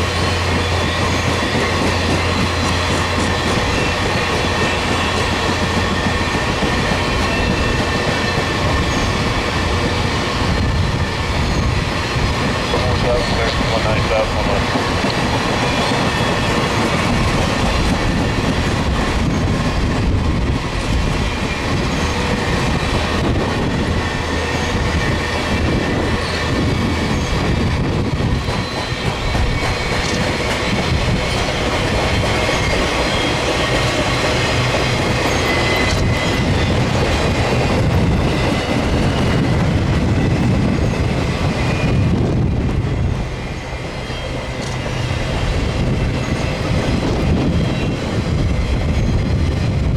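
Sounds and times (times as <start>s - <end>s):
train wheels clicking over rail joints: 0.0s - 42.8s
high wheel squeals: 0.2s - 9.4s.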